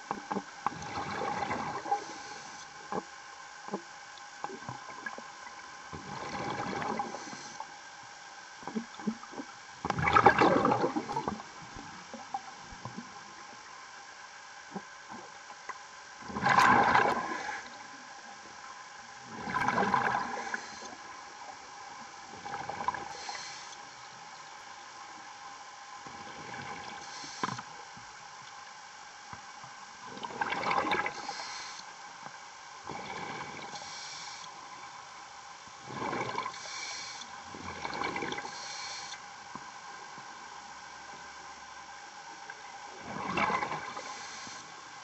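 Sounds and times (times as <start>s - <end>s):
steady hum with fixed tones: 0.0s - 45.0s
breath bubbling underwater: 9.9s - 11.4s.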